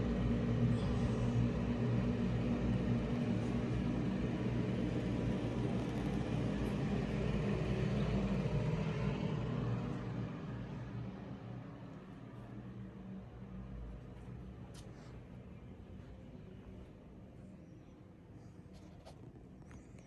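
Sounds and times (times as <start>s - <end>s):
low mechanical rumble: 0.0s - 20.0s.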